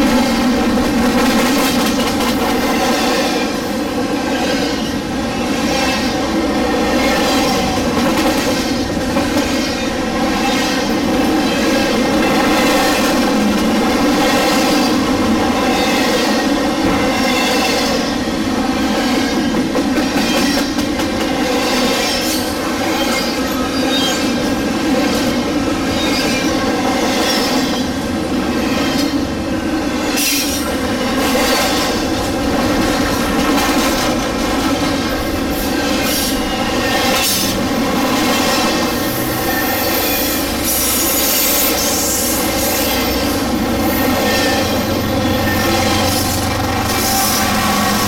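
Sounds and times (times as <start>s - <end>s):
metallic wheel squeal: 39.1s - 48.0s.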